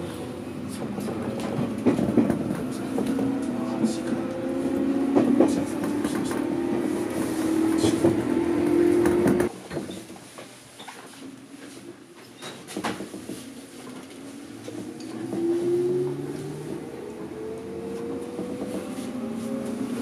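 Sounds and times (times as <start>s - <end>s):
rumbling rail noise: 0.0s - 10.6s, 11.3s - 20.0s
traction motor hum: 0.1s - 9.5s.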